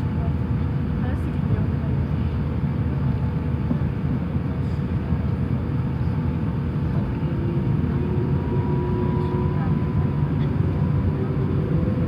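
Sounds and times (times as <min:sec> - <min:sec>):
airplane cabin low rumble: 0:00.0 - 0:12.0
faint steady hum: 0:06.9 - 0:12.0.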